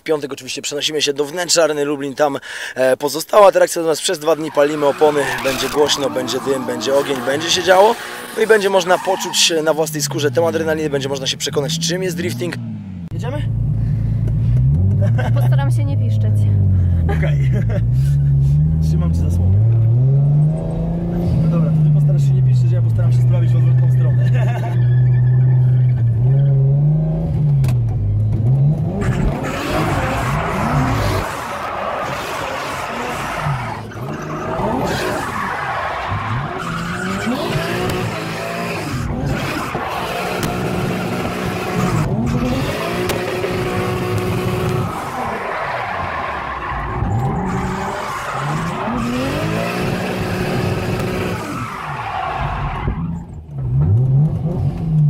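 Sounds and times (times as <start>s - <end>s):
tyres squealing: 4.0s - 9.7s, 29.0s - 53.4s
car engine revving: 4.2s - 55.0s.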